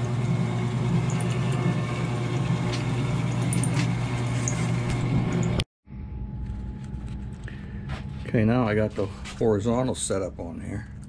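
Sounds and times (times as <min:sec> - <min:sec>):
milling machine motor hum: 0:00.0 - 0:05.6.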